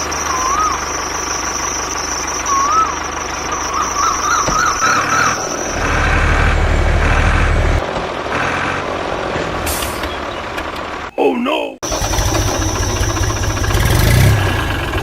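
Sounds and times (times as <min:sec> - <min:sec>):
short warbling chirps: 0:00.0 - 0:06.5
steady high whine: 0:00.0 - 0:07.8
tractor engine chugging: 0:00.0 - 0:08.8, 0:11.8 - 0:15.0.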